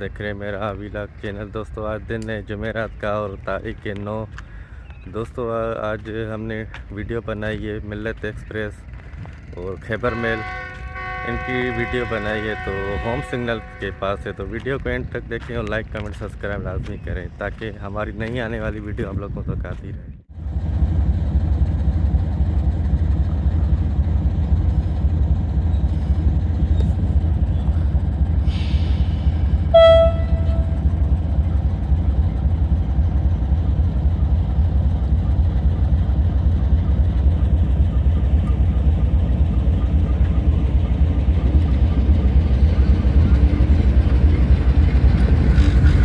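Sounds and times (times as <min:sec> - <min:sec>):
train rumbling past: 0:00.0 - 0:19.4, 0:20.3 - 0:46.0
train horn blast: 0:09.9 - 0:14.8, 0:28.9 - 0:31.1.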